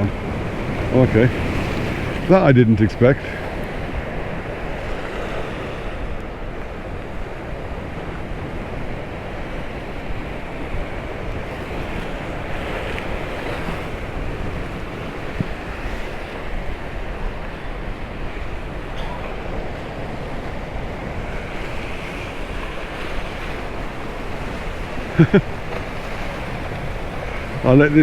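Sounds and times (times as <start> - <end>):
sea waves washing: 0.0 - 28.0
wind buffeting microphone: 0.0 - 28.0.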